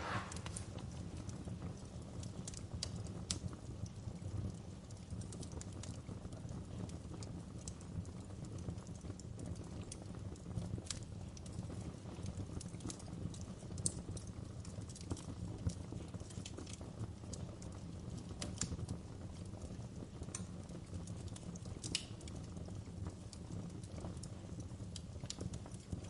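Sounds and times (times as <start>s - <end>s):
burning wood popping: 0.0s - 26.0s
fire crackling: 0.0s - 26.0s.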